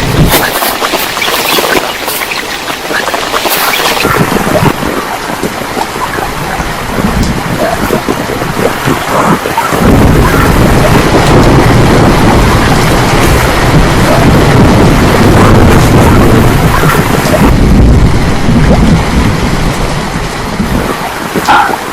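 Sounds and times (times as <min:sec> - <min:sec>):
deep rumble: 0:00.0 - 0:21.4
torrential rain pouring: 0:00.0 - 0:21.9.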